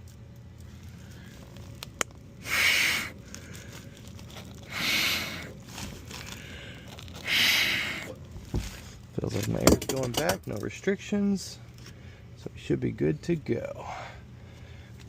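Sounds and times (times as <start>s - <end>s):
air hissing through drain line: 2.4s - 3.2s, 4.7s - 5.6s, 7.2s - 8.2s.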